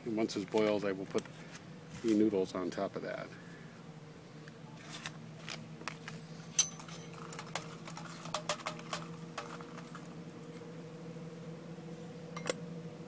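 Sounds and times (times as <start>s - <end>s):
faint steady hum: 0.0s - 13.0s
utensil clinking on cookware: 6.6s - 7.7s.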